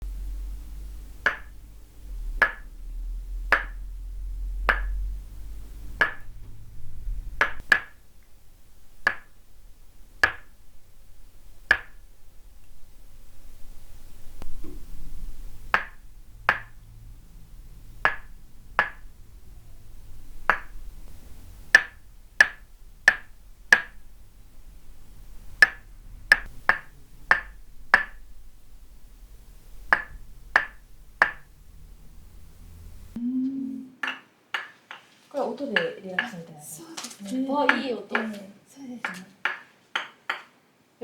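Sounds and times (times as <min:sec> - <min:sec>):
wooden mallet striking wooden peg: 0:00.6 - 0:05.3, 0:05.9 - 0:06.5, 0:07.4 - 0:08.3, 0:09.0 - 0:09.5, 0:10.1 - 0:10.6, 0:11.6 - 0:12.8, 0:14.4 - 0:32.4, 0:34.0 - 0:35.1, 0:39.1 - 0:40.6.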